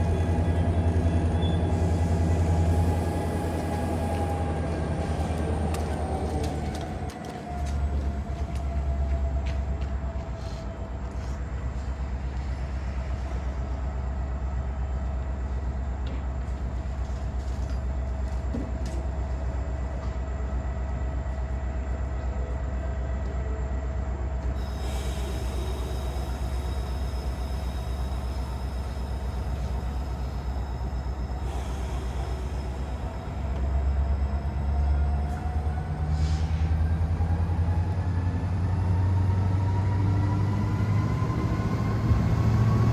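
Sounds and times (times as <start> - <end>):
diesel locomotive drone: 0.0 - 42.9
high whine: 24.6 - 38.1.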